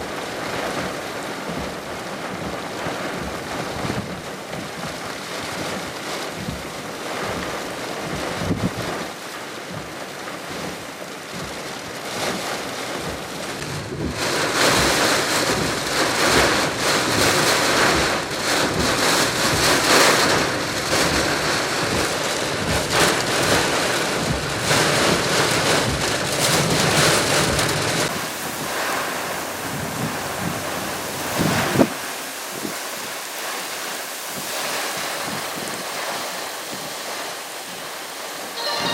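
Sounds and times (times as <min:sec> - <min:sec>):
rain: 0:00.0 - 0:38.9
wind noise on microphone: 0:00.0 - 0:38.9
strong wind gusts: 0:05.5 - 0:09.1, 0:10.6 - 0:33.3, 0:34.2 - 0:38.9.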